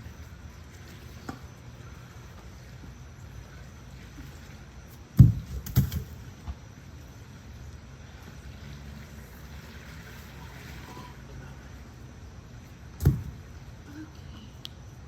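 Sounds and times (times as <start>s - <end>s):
outdoor background noise: 0.0s - 15.0s
heavy block thud: 5.2s - 6.1s, 13.0s - 13.4s.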